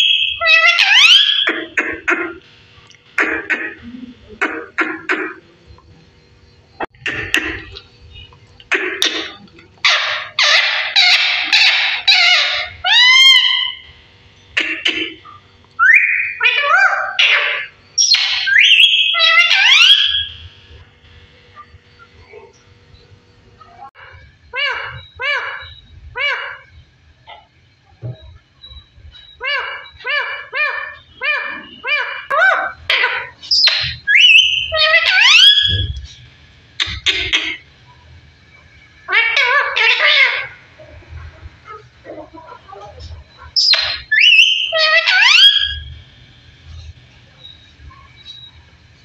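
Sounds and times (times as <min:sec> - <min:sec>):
parrot whistled calls: 0:00.0 - 0:01.5, 0:09.8 - 0:13.8, 0:15.8 - 0:20.4, 0:28.7 - 0:36.1, 0:39.1 - 0:40.6, 0:43.5 - 0:46.0
parrot squawking: 0:00.0 - 0:02.4, 0:08.7 - 0:13.9, 0:14.6 - 0:20.4, 0:24.0 - 0:26.7, 0:29.3 - 0:36.1, 0:36.8 - 0:37.7, 0:39.0 - 0:41.0, 0:41.6 - 0:46.0.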